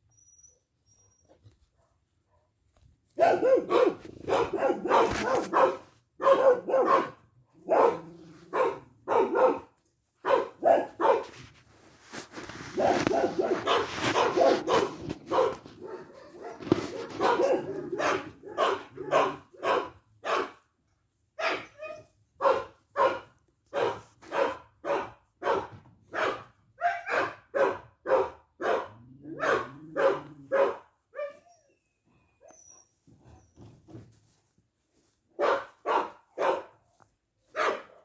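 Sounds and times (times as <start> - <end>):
dog barking: 3.2 - 11.3, 12.8 - 20.6, 21.4 - 31.4, 35.4 - 36.8, 37.5 - 38.0.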